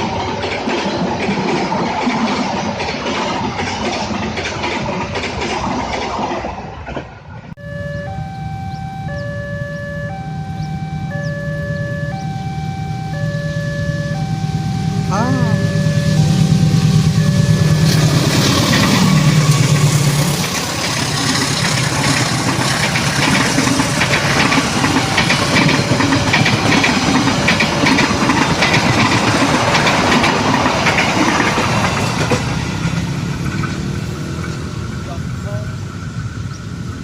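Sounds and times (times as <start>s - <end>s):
train wheels clattering on rails: 0.0s - 7.4s, 16.2s - 37.0s
diesel locomotive engine drone: 0.0s - 37.0s.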